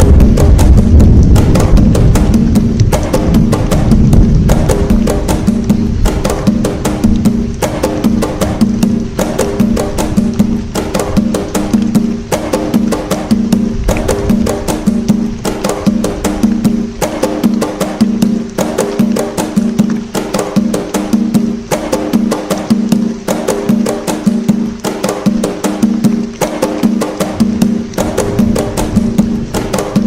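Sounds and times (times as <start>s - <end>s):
hand drums playing a rhythm: 0.0s - 30.0s.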